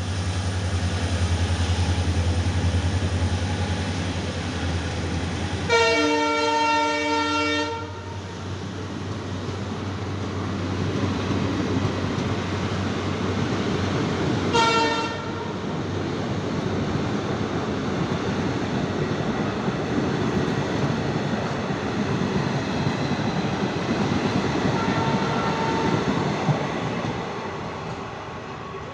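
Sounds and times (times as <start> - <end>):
train wheels rumbling on rail: 0.0 - 28.9
train horn blast: 5.7 - 8.3, 14.5 - 15.6, 24.7 - 26.2.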